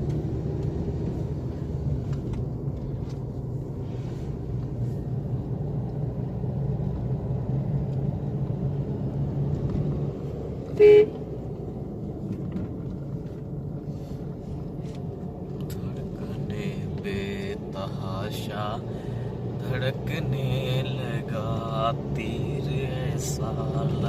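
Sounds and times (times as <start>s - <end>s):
car engine and road noise drone: 0.0s - 24.0s
car horn toot: 10.7s - 11.2s.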